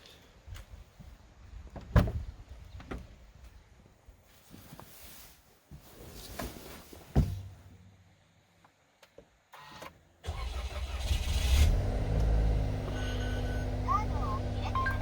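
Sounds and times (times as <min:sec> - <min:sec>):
car engine starting and idling: 0:09.6 - 0:15.0.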